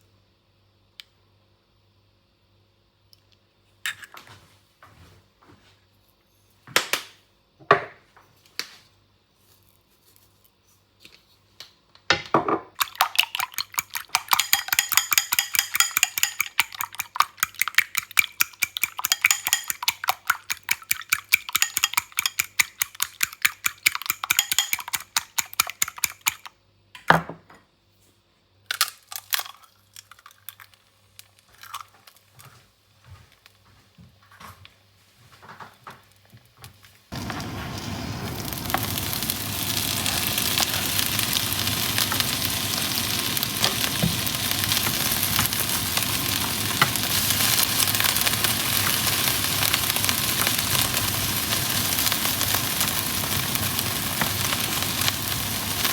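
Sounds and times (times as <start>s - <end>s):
metal utensil beating against bowl: 13.1s - 26.4s
kitchenware clinking and knocking: 13.4s - 26.2s.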